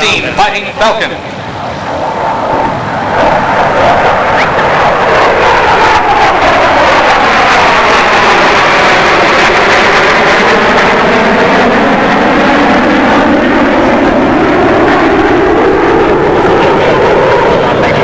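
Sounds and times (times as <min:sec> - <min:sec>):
jet engines roaring in flyby: 0:00.0 - 0:18.0.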